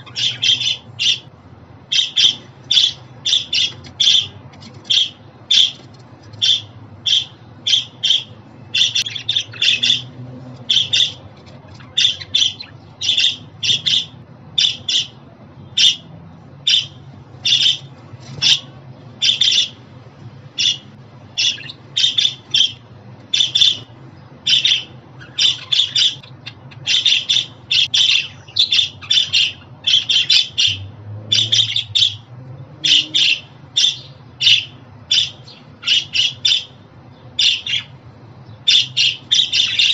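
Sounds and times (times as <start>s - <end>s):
budgerigar chirps and squawks: 0.0s - 5.8s, 6.4s - 10.1s, 10.7s - 15.2s, 15.8s - 19.8s, 20.6s - 36.8s, 37.4s - 38.0s, 38.6s - 39.9s
faint low hum: 0.0s - 39.9s.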